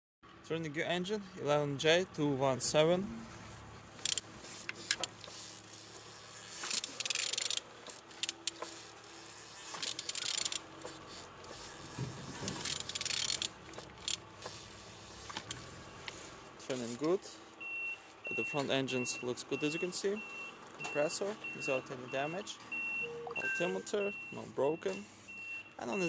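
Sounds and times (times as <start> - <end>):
engine rattling: 1.0 - 23.0
metallic clicks: 4.0 - 5.4, 6.6 - 8.8, 9.7 - 10.6, 12.5 - 14.2.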